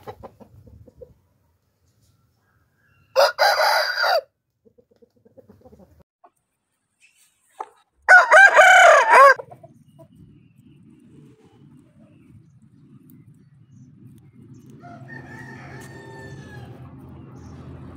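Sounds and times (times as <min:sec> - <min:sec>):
roosters crowing: 0:02.6 - 0:04.3, 0:08.1 - 0:09.4, 0:14.7 - 0:17.1.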